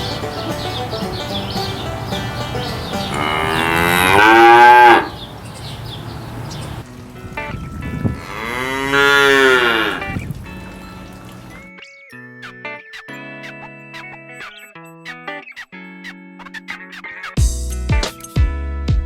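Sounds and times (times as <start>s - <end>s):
cow mooing: 3.1s - 5.3s, 8.2s - 10.2s.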